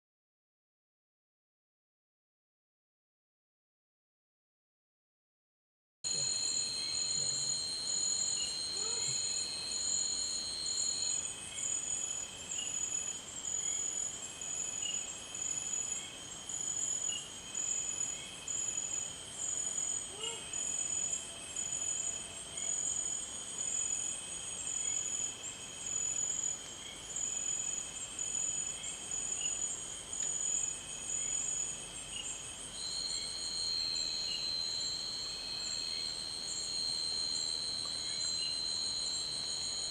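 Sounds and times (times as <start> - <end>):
high steady insect tone: 6.1 - 39.9
insects trilling: 6.1 - 39.9.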